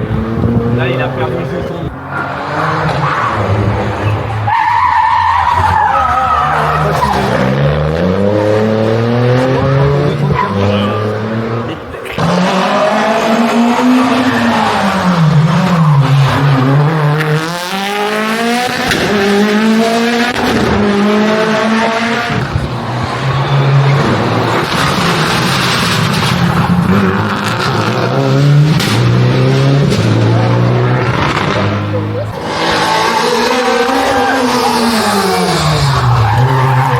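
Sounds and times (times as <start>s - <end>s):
rally car engine revving: 0.0s - 36.9s.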